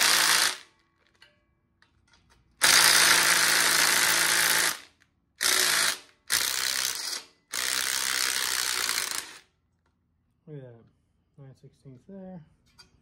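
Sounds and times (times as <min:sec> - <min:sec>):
electric wrench spinning nuts: 0:00.0 - 0:00.7, 0:02.6 - 0:09.4.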